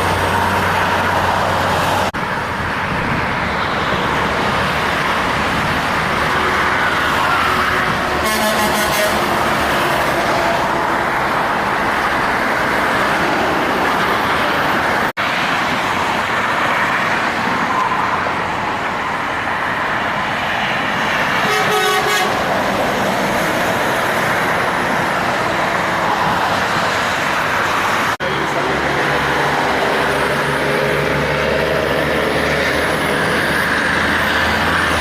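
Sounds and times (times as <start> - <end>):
heavy trucks passing: 0.0 - 35.0
vehicle horn: 8.1 - 10.7, 21.4 - 22.4.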